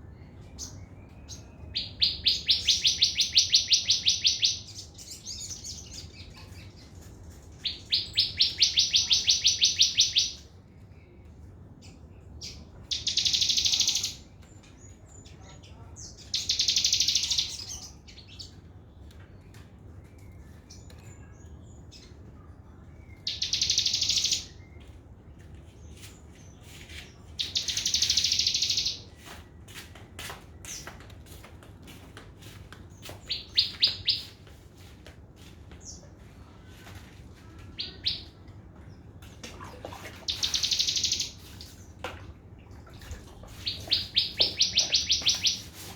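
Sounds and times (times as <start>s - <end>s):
bird singing fast trill: 12.9s - 14.2s, 16.3s - 17.8s, 23.2s - 24.6s, 27.4s - 29.0s, 40.3s - 41.4s, 43.6s - 45.7s.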